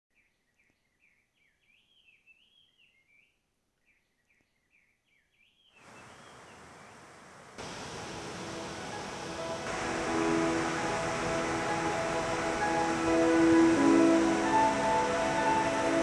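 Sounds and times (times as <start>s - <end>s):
faint birdsong: 0.1s - 16.0s
rushing falling water: 5.8s - 16.0s.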